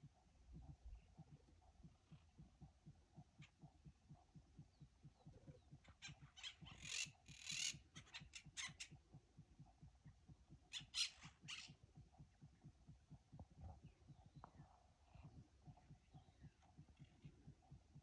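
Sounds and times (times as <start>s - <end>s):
harsh raspy bird calls: 5.6s - 9.0s, 10.7s - 11.8s.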